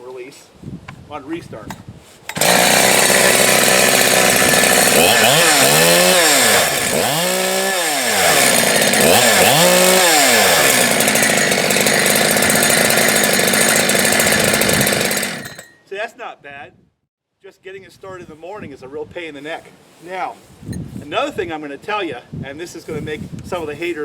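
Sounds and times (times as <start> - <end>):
chainsaw idling and revving: 2.3 - 15.7.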